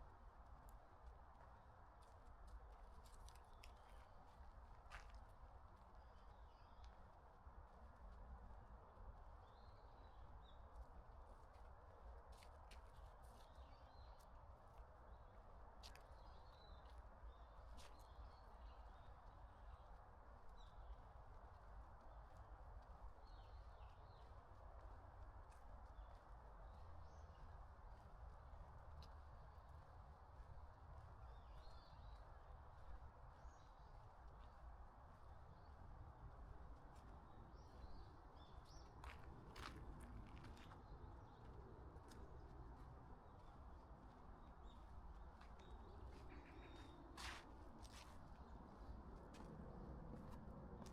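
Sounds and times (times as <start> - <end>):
soft footstep clicks: 38.9 - 43.0, 44.1 - 48.5.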